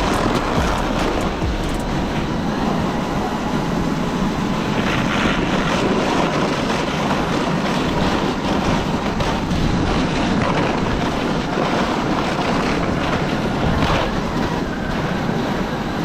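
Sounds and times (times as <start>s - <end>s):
electric toy truck running: 0.0s - 2.4s.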